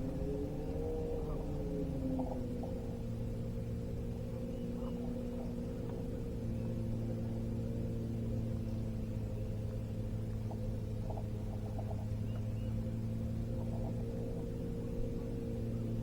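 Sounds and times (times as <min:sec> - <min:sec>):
boat motor running: 0:00.0 - 0:16.0.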